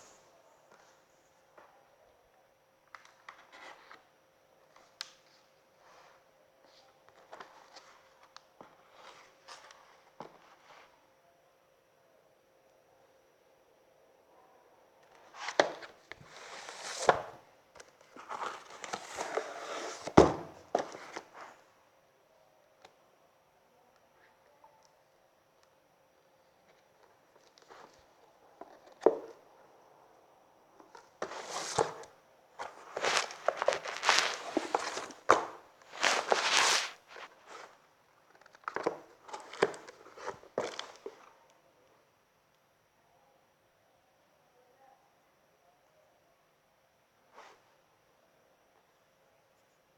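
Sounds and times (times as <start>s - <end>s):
books rustling: 4.8s - 11.0s, 15.2s - 21.6s, 30.9s - 37.8s, 38.4s - 41.3s
sharp knocks of books: 18.3s - 21.2s.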